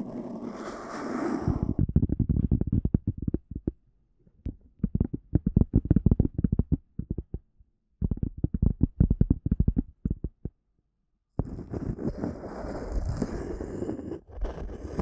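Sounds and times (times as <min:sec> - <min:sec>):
muffled tapping on microphone: 0:01.7 - 0:03.8, 0:04.4 - 0:10.6.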